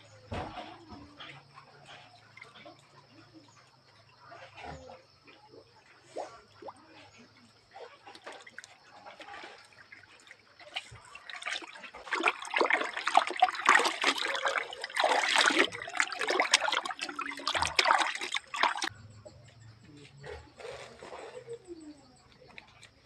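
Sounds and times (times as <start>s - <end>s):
water pouring and splashing: 6.4s - 18.9s.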